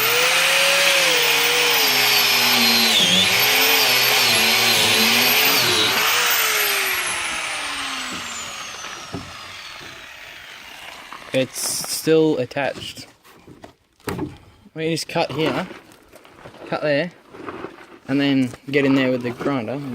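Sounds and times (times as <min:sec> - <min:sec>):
grinder disc winding down: 0:00.0 - 0:11.6
angle grinder cutting steel: 0:00.0 - 0:11.7.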